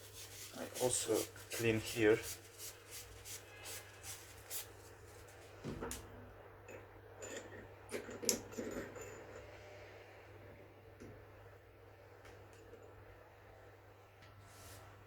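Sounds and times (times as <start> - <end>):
hand rubbing metal: 0.0 - 5.3.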